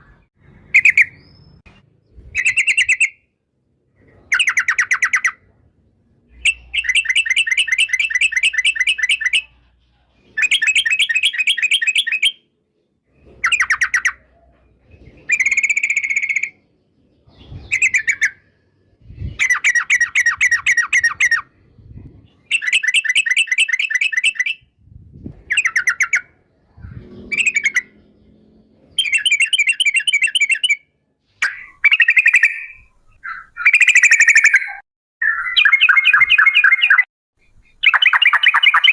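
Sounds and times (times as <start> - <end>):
bulbul singing: 6.2 - 12.6, 15.0 - 38.9.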